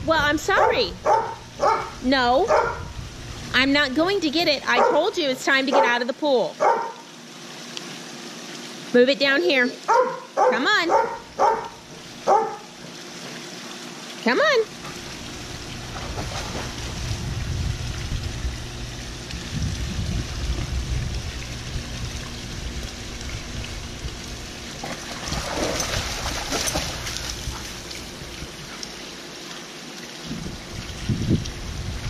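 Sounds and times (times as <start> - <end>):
wind rumble on microphone: 0.0 - 4.0, 15.5 - 24.5, 30.2 - 32.0
dog splashing in pool: 3.5 - 7.0, 8.0 - 31.1.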